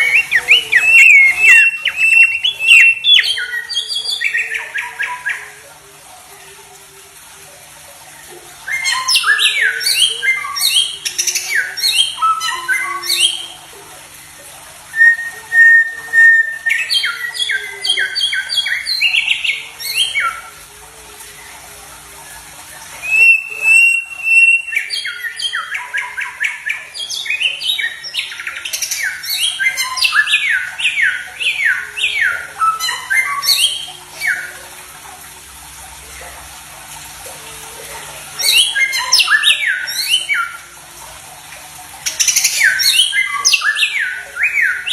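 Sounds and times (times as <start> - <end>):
songbird whistled notes: 0.0 - 5.6, 14.9 - 20.4, 23.0 - 34.5.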